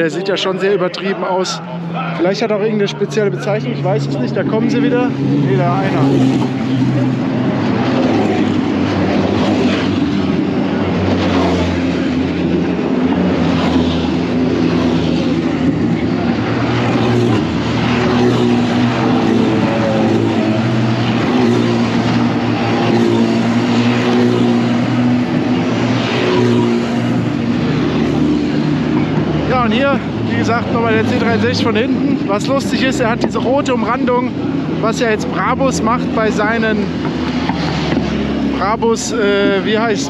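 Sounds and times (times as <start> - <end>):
car engines running at low revs: 0.0 - 40.0.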